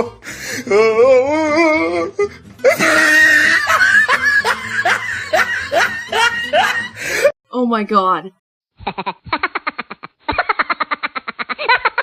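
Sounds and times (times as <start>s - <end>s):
music: 0.0s - 7.3s.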